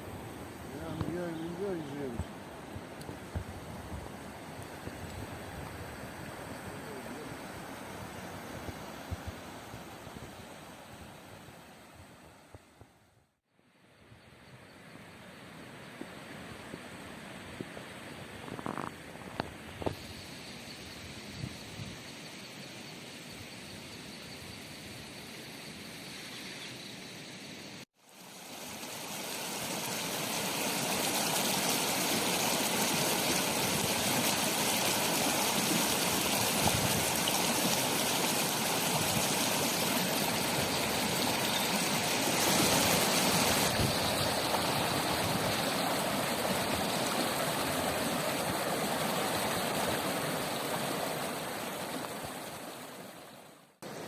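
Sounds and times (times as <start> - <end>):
mountain river rushing: 0.0 - 12.2, 28.1 - 54.0.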